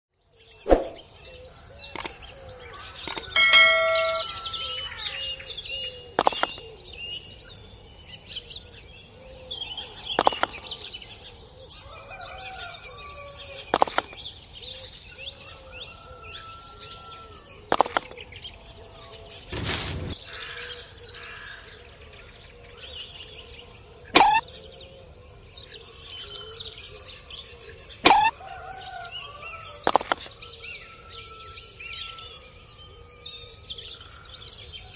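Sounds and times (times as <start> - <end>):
small birds chirping: 0.3 - 28.4, 29.3 - 34.9
sharp clicks or knocks: 3.1 - 4.3, 6.2 - 6.6, 10.2 - 10.6, 13.8 - 14.2, 17.7 - 18.2, 29.9 - 30.3
short bell-like ding: 3.2 - 4.9.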